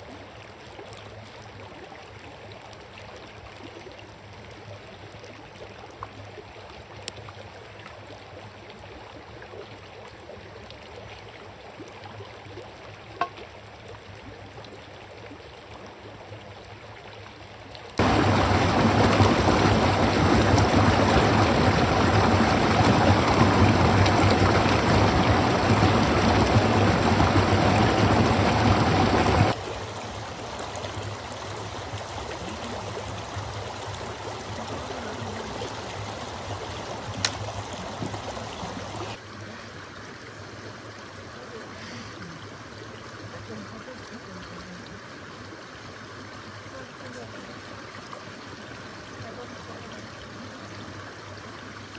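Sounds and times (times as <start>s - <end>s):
river water rushing: 18.0s - 39.3s.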